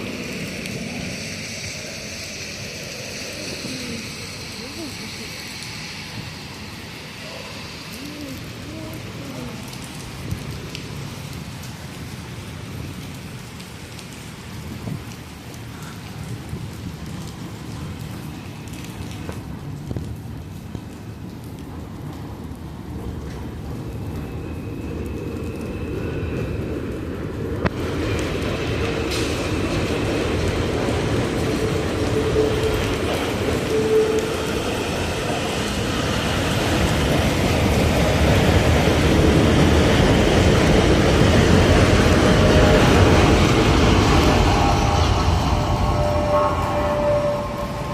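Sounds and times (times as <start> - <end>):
raindrops ticking on surfaces: 0.0 - 45.9
steady rain falling: 0.0 - 47.9
low rumble: 23.1 - 47.9.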